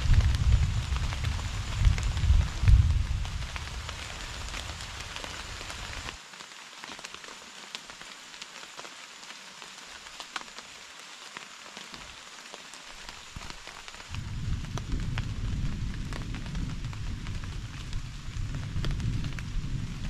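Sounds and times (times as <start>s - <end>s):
low rumble: 0.0s - 5.0s, 14.1s - 20.0s
rain falling: 0.0s - 20.0s.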